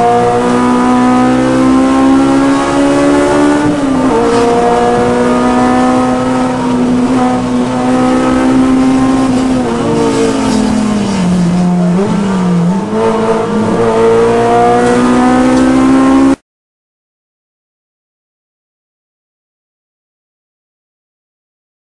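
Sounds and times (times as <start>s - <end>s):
car engine running: 0.0s - 16.3s.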